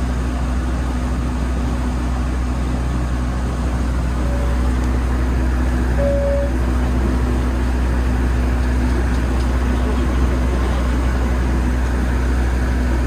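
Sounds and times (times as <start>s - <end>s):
boat engine droning: 0.0s - 13.0s
short single-pitch tones: 4.2s - 4.8s, 6.0s - 6.6s.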